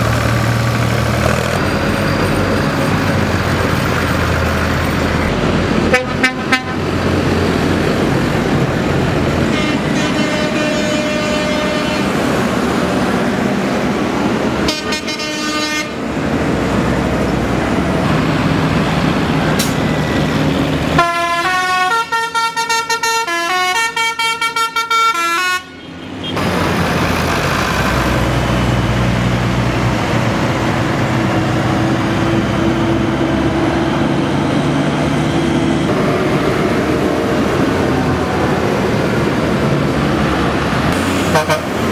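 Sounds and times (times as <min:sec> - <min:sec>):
tractor engines running: 0:00.0 - 0:22.8, 0:25.9 - 0:41.9
horn toots: 0:09.5 - 0:12.2, 0:14.6 - 0:16.0, 0:21.0 - 0:26.5, 0:41.2 - 0:41.8.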